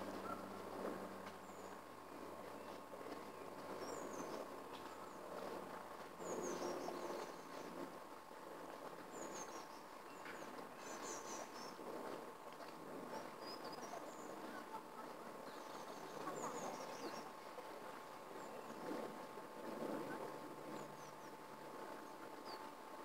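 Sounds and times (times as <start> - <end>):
faint steady hum: 0.0 - 23.0
steady background noise: 0.0 - 23.0
small birds chirping: 0.2 - 5.6, 6.2 - 7.8, 9.1 - 19.2.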